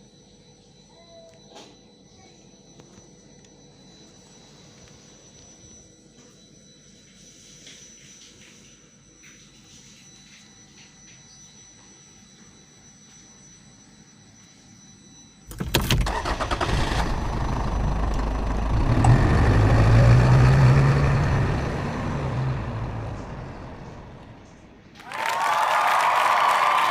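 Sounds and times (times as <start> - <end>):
car engine cranking and starting: 15.5 - 24.8.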